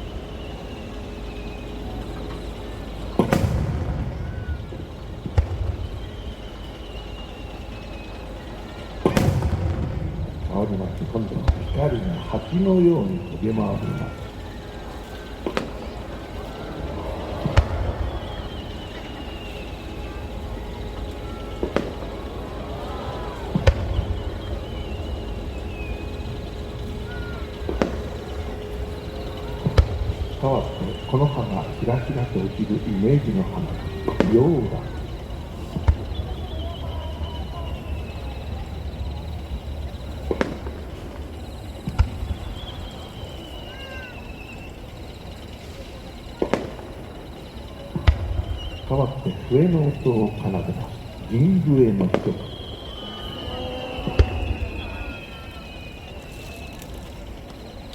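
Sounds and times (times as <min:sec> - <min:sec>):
firework shells bursting: 0:00.0 - 0:57.9
high firework whistles: 0:00.0 - 0:57.9
steady low rumble: 0:00.0 - 0:57.9
firework shell booms: 0:03.2 - 0:06.2, 0:09.0 - 0:12.3, 0:54.0 - 0:55.2.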